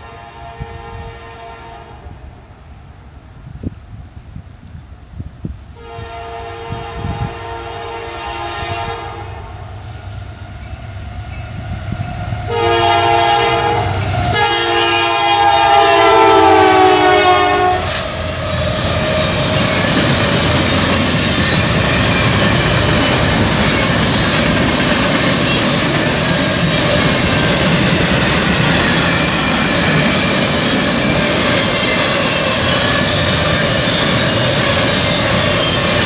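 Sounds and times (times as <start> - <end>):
train horn blasts: 0.0 - 2.3, 5.7 - 9.8, 12.4 - 19.4
train wheels rumbling on rails: 0.0 - 36.0.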